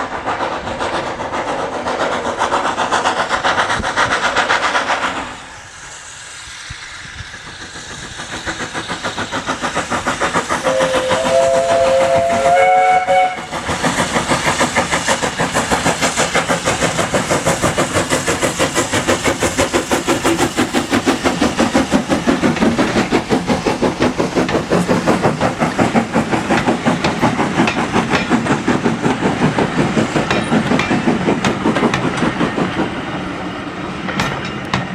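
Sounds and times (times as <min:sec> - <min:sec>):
steam locomotive exhaust beats: 0:00.0 - 0:34.9
two-note locomotive whistle: 0:10.6 - 0:13.5.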